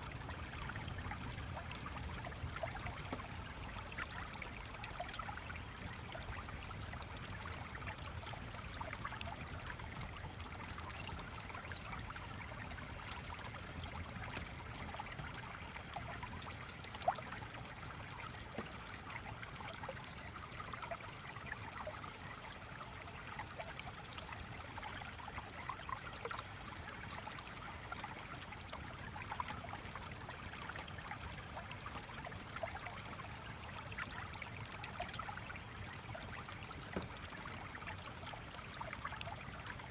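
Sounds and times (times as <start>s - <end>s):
small stream trickling: 0.0s - 39.9s.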